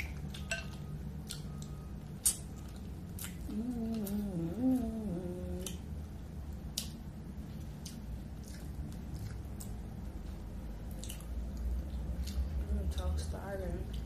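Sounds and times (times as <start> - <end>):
chewing with lip smacks: 0.0 - 5.9, 6.5 - 14.0
person humming: 3.5 - 5.8.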